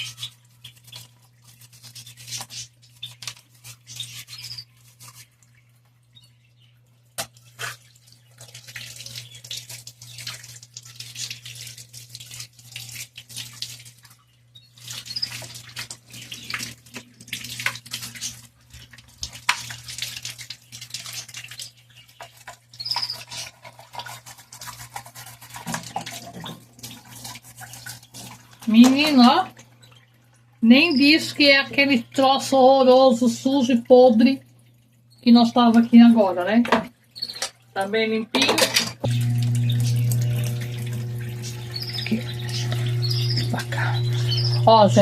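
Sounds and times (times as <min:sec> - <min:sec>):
water splashing: 0:06.8 - 0:45.0
hand scrubbing: 0:23.0 - 0:29.3
steady low hum: 0:39.0 - 0:45.0.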